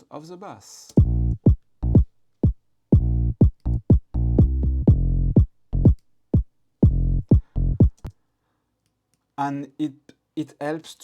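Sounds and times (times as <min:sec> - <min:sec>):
synth bass notes: 0:01.0 - 0:02.1, 0:03.0 - 0:06.0, 0:06.8 - 0:08.1
drum machine kick: 0:01.0 - 0:08.0.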